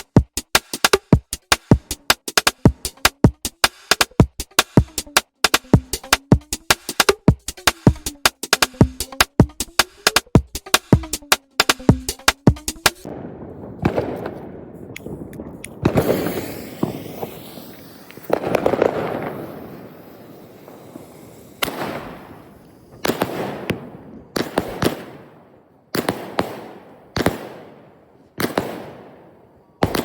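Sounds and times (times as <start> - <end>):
fireworks bangs with echo: 13.0 - 30.0.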